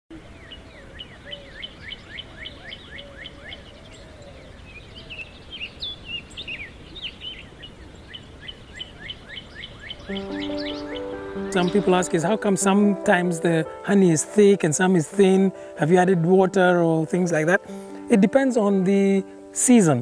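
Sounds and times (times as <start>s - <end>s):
flurry of mixed bird calls: 0.2s - 12.4s
lower wavering bird call: 9.8s - 12.1s
birds short falling chirps: 10.0s - 11.9s.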